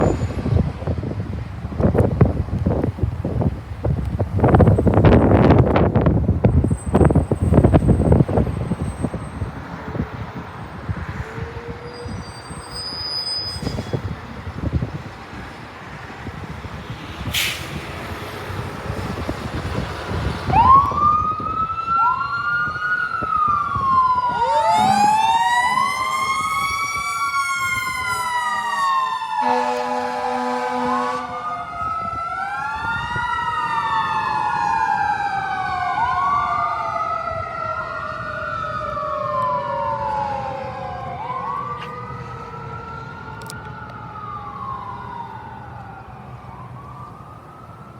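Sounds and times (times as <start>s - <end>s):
truck engine rumble: 0.0s - 12.2s, 13.6s - 41.2s
fire truck siren wailing: 0.0s - 13.3s, 18.2s - 47.9s
short horn blasts: 24.6s - 25.8s, 29.4s - 31.4s.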